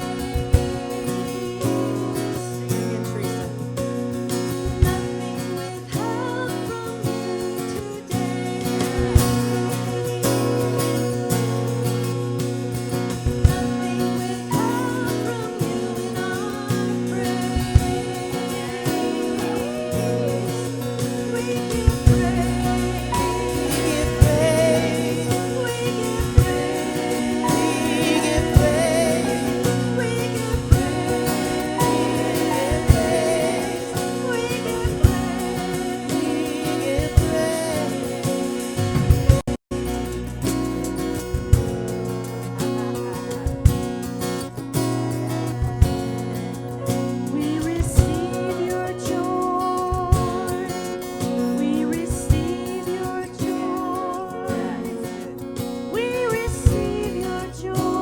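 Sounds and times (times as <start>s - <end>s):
person singing with vibrato: 0.0s - 3.7s, 4.6s - 12.0s, 12.9s - 39.4s, 47.3s - 58.0s
sustained instrumental chords: 17.3s - 46.8s.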